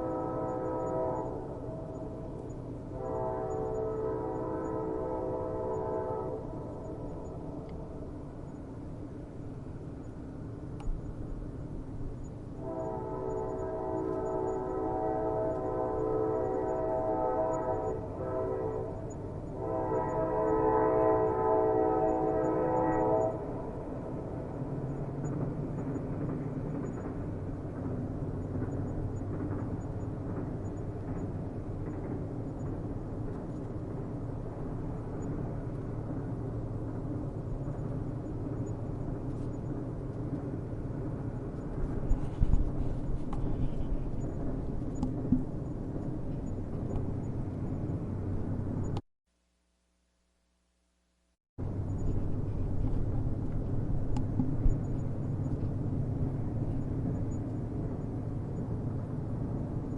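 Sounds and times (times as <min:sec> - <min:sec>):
train horn blaring: 0:00.0 - 0:07.6, 0:12.6 - 0:24.0
train rumbling on rails: 0:00.0 - 0:49.0, 0:51.6 - 0:59.9.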